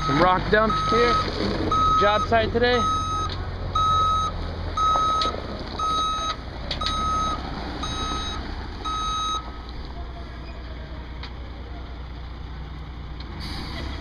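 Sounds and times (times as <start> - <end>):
truck backup alarm beeping: 0.0 - 9.7
diesel engine rumble: 0.0 - 14.0.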